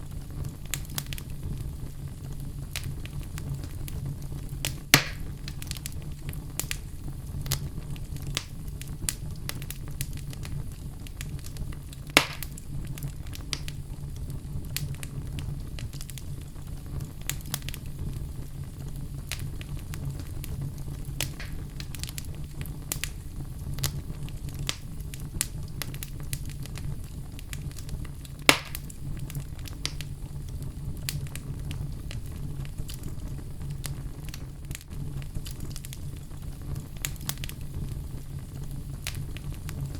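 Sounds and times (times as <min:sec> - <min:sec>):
fire crackling: 0:00.0 - 0:39.9
fire rumbling in fireplace: 0:00.0 - 0:39.9
loud wood pops: 0:04.7 - 0:05.3, 0:12.2 - 0:12.6, 0:21.2 - 0:22.0, 0:28.5 - 0:28.9.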